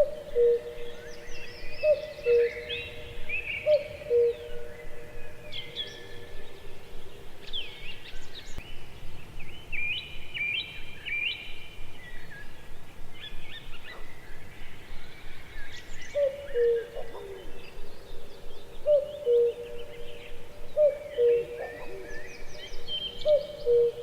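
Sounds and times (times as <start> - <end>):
low hooting bird call: 0.0 - 8.2, 15.6 - 24.0
birds chirping and singing: 0.0 - 24.0.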